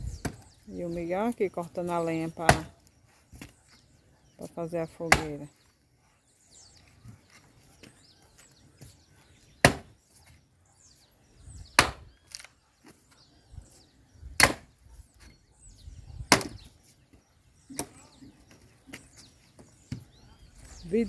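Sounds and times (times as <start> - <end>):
axe chopping firewood: 0.2 - 0.5, 2.4 - 2.8, 5.0 - 5.4, 9.6 - 10.0, 11.7 - 12.5, 14.4 - 14.8, 16.3 - 16.7.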